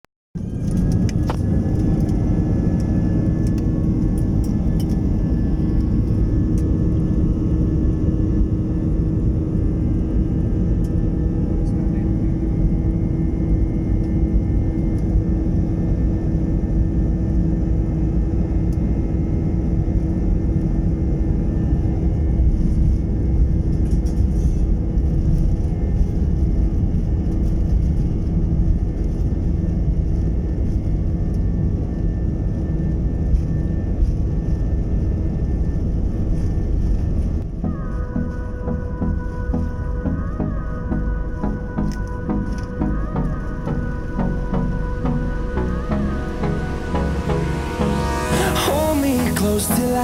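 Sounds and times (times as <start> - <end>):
jet engines in cabin: 0.4 - 50.0
music: 37.5 - 50.0.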